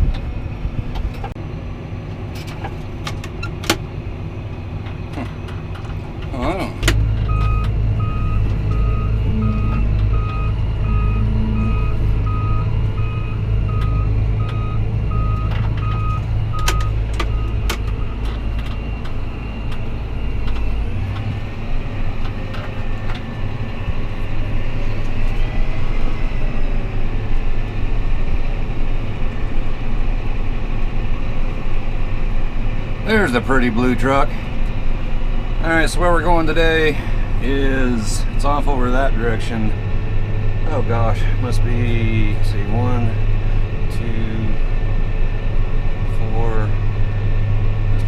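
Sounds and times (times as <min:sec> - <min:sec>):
tractor engine running: 0:00.0 - 0:48.0
rapid electronic warning beep: 0:07.3 - 0:18.2.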